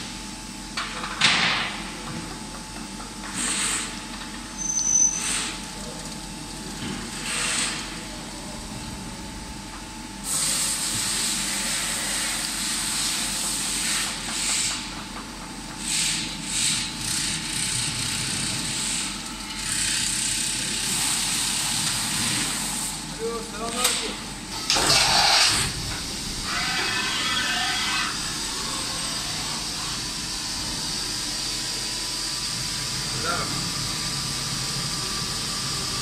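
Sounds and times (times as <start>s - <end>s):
faint machine hum: 0.0s - 36.0s
machine hissing: 10.2s - 14.9s, 15.8s - 36.0s.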